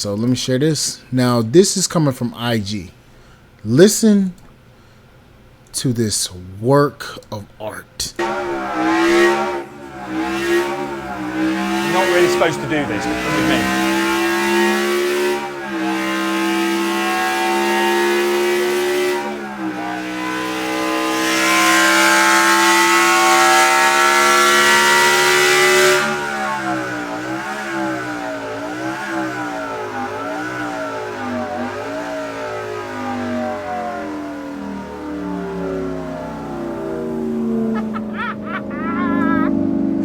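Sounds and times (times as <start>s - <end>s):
engine revving: 8.2s - 40.0s.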